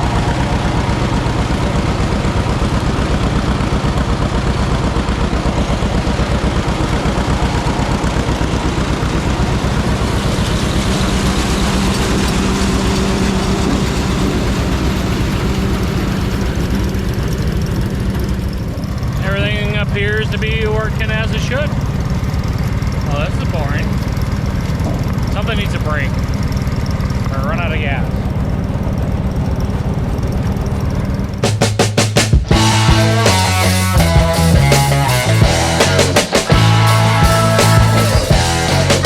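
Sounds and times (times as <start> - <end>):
steady hum: 0.0 - 39.0
tractor engine running: 0.0 - 39.0.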